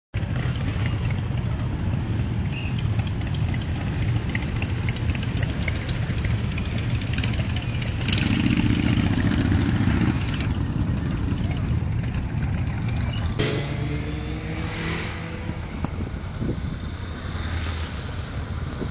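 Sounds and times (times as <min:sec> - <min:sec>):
motorcycle engines idling: 0:00.2 - 0:14.5
louder engine note: 0:13.4 - 0:18.2.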